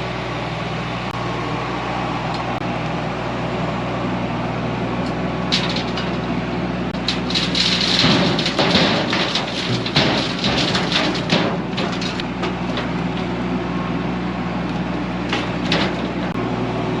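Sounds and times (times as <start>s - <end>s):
tractor diesel engine running: 0.0s - 17.0s
rattles and knocks: 5.5s - 6.4s, 7.0s - 13.6s, 14.7s - 16.4s.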